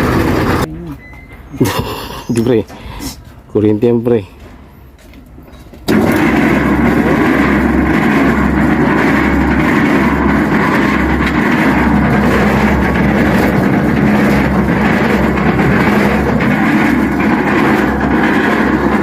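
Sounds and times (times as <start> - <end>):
concrete mixer running: 0.0 - 0.8, 5.8 - 19.0.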